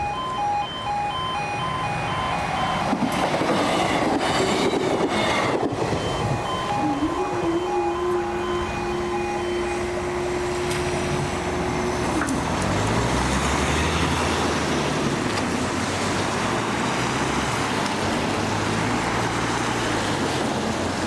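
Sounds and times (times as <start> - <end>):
level crossing two-tone alarm: 0.0 - 12.6
vehicle engines pulling away: 0.2 - 21.0.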